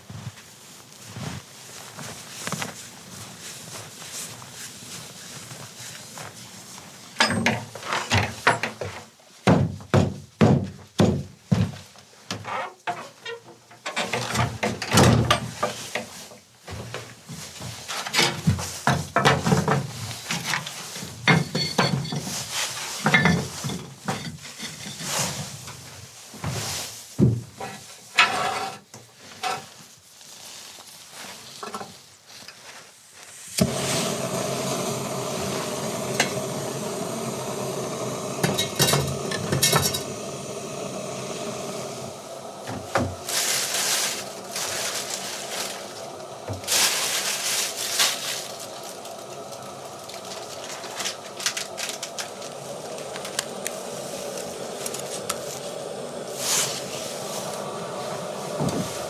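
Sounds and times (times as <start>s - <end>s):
food sizzling in a pan: 33.2s - 59.0s.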